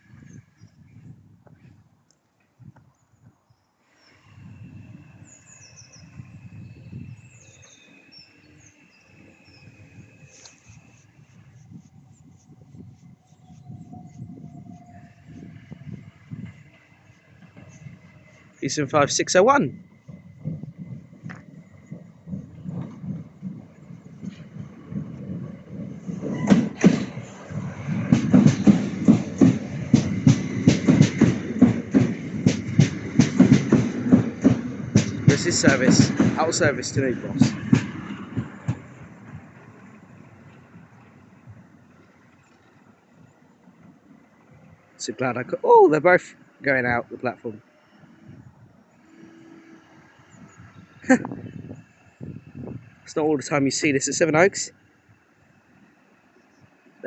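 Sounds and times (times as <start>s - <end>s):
train low rumble: 0.0s - 57.0s
birds chirping: 2.2s - 24.8s, 26.3s - 45.8s, 50.0s - 53.3s, 56.2s - 56.8s
train wheels clacking over rail joints: 19.8s - 43.0s, 49.0s - 53.0s.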